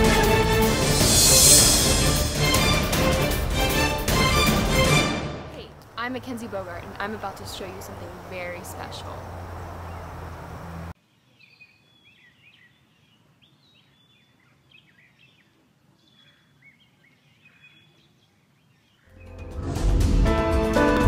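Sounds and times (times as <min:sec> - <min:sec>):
music: 0:00.0 - 0:05.7, 0:19.1 - 0:21.0
small birds chirping: 0:05.6 - 0:19.4.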